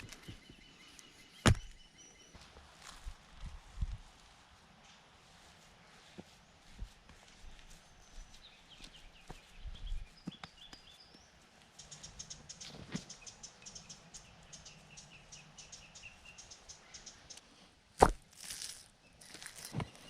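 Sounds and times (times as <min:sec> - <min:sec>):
birds chirping: 0:00.0 - 0:02.5, 0:07.6 - 0:17.6, 0:18.6 - 0:20.0.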